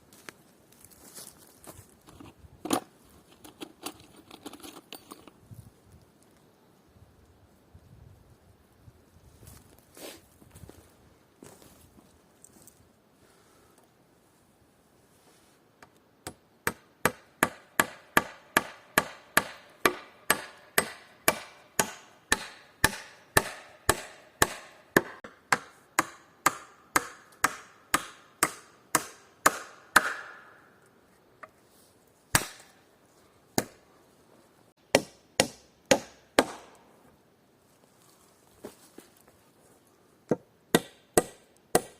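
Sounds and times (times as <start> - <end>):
sharp hammer strikes: 16.3 - 30.6.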